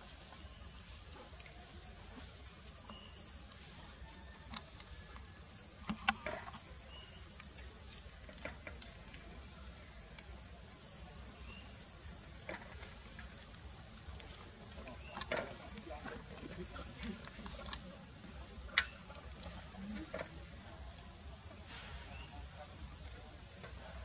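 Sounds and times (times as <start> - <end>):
bird chirping: 2.9 - 3.5, 6.9 - 7.7, 11.4 - 12.0, 14.9 - 15.4, 18.7 - 19.4, 22.1 - 22.7.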